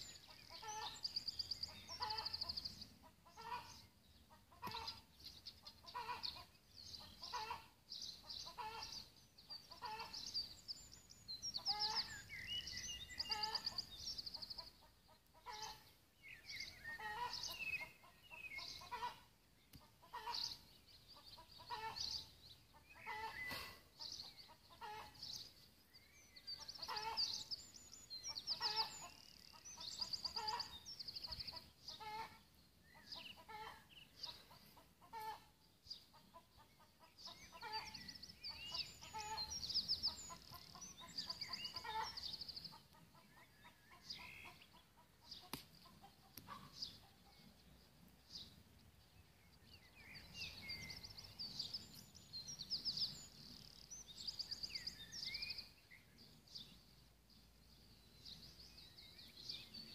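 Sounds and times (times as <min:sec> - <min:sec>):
bird short calls: 0:22.9 - 0:25.2.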